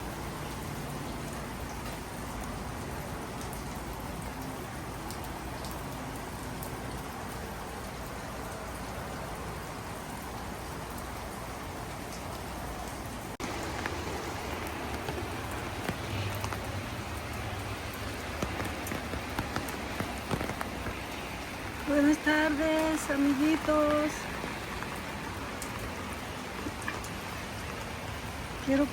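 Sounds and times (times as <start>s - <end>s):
rain falling: 0.0s - 28.9s
raindrop ticks: 0.1s - 8.2s, 11.9s - 28.9s.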